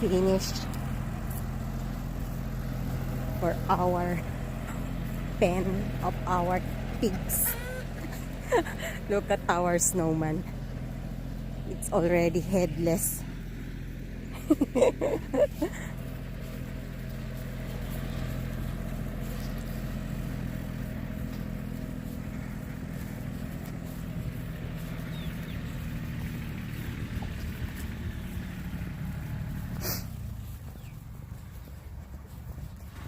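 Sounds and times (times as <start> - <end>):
engine running steadily: 0.0 - 33.0.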